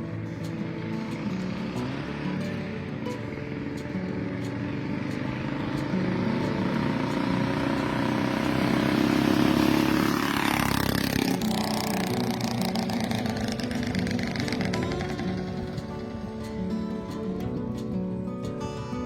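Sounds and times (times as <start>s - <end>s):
scooter engine running: 0.0s - 18.6s.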